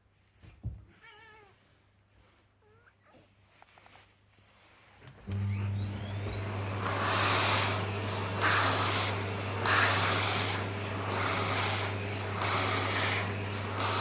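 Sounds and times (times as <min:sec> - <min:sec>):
vacuum cleaner motor whine: 0:05.0 - 0:14.0
suction rushing: 0:05.9 - 0:14.0.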